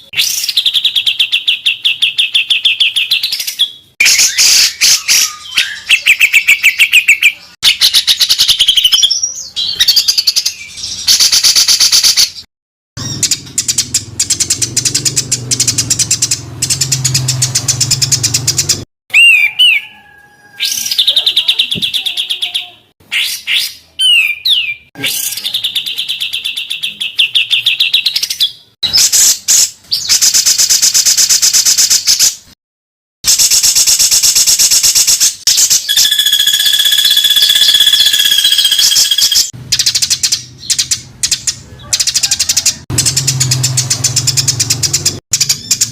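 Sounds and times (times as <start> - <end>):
songbirds trilling and chattering: 35.9 - 45.9.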